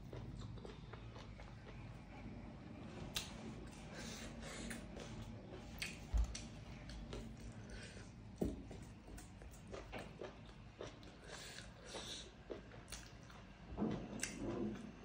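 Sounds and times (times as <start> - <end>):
chewing with wet lip smacks: 0.0 - 2.0, 3.1 - 7.9, 8.7 - 13.5.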